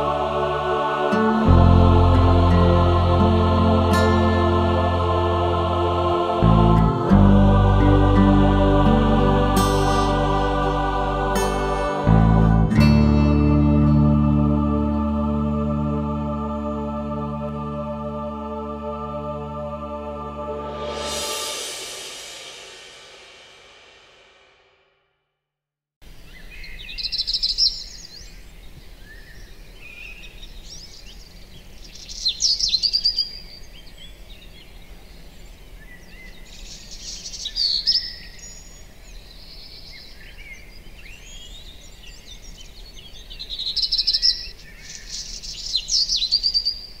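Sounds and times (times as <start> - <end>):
faint outdoor background noise: 26.0 - 47.0
songbird singing: 26.1 - 47.0.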